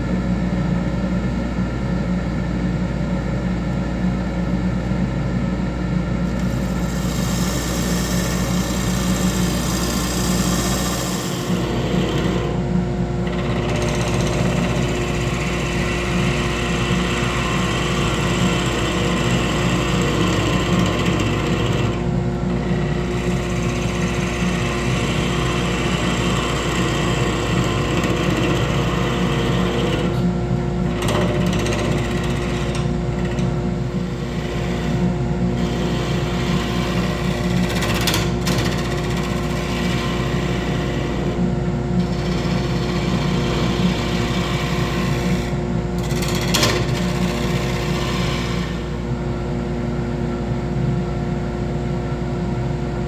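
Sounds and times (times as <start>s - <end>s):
wood lathe running: 6.3s - 49.2s.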